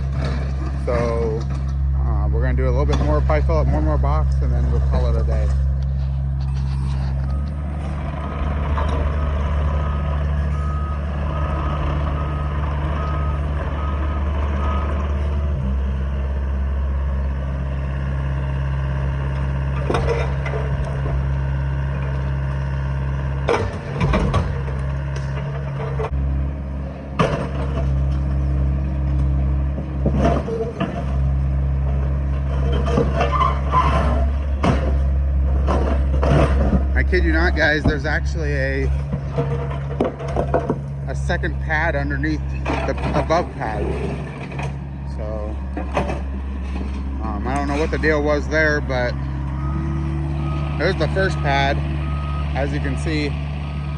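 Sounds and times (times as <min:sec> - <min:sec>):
concrete knocks and clanks: 0:00.0 - 0:01.9, 0:02.5 - 0:05.7, 0:19.8 - 0:21.2, 0:23.4 - 0:26.2, 0:27.1 - 0:28.4, 0:29.1 - 0:31.4, 0:32.3 - 0:44.8, 0:45.7 - 0:48.6
diesel excavator running: 0:00.0 - 0:53.9
reversing alarm beeping: 0:07.2 - 0:08.0, 0:08.8 - 0:15.2, 0:48.8 - 0:53.9.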